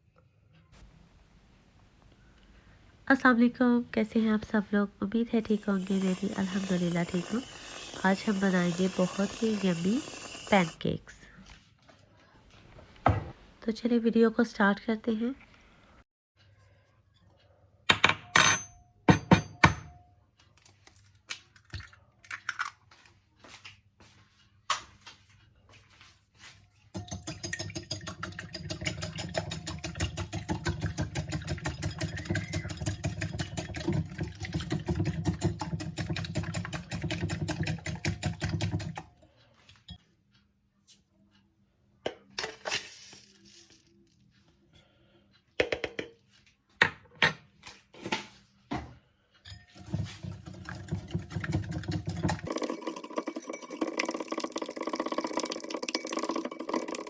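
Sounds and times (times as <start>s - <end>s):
kitchen appliance motor pulsing: 5.2s - 10.9s.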